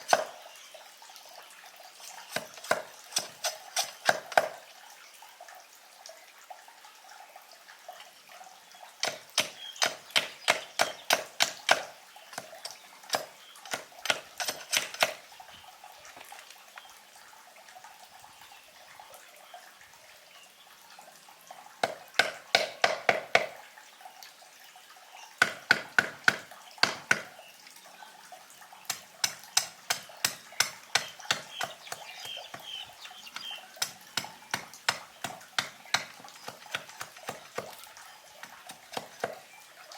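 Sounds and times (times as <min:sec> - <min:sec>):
blade chopping wood: 0:09.0 - 0:15.2.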